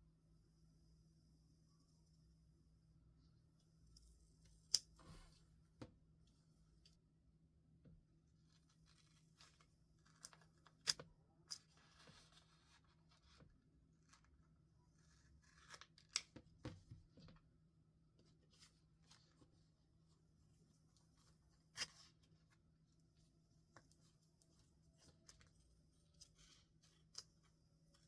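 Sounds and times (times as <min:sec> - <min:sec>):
soft paper rustling: 0:08.5 - 0:17.5, 0:18.1 - 0:28.0.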